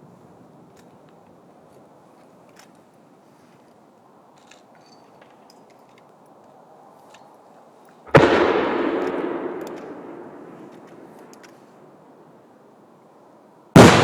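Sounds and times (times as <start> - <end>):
firework shell boom: 8.1 - 11.4
rumbling echo: 8.1 - 11.4, 13.8 - 14.0.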